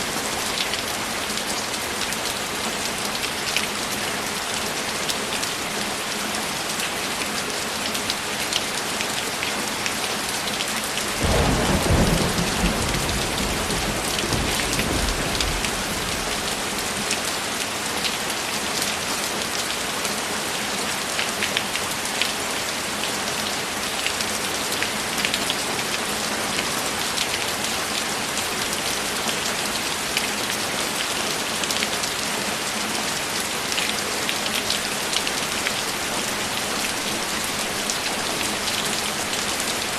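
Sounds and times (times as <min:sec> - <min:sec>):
heavy rain: 0:00.0 - 0:39.9
thunder rumbling: 0:11.2 - 0:16.9.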